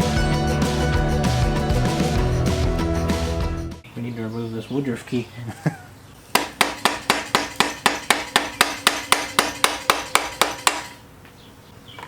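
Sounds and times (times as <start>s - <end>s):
hammer tapping on metal: 6.4s - 11.0s.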